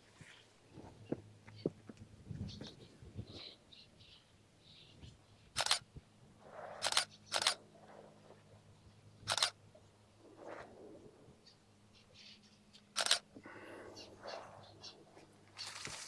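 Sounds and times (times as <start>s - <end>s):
camera shutter clicks: 5.6s - 5.8s, 6.8s - 7.6s, 9.3s - 9.6s, 13.0s - 13.3s.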